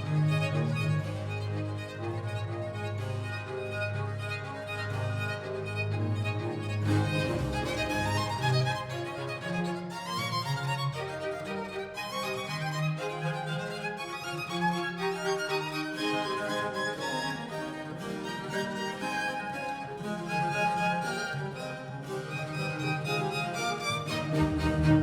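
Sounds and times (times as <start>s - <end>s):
low held string notes: 0.0s - 9.4s, 23.9s - 25.0s
violin melody: 0.0s - 25.0s.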